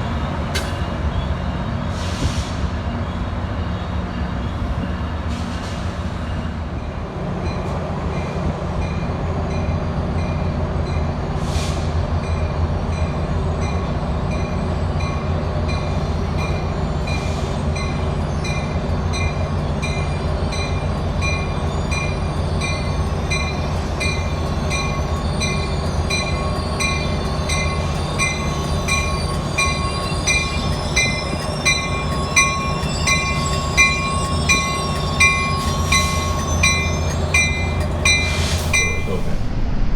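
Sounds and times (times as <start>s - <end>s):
train engine hum: 0.0s - 39.9s
high wheel squeals: 15.8s - 39.6s
bell ringing: 22.7s - 39.5s.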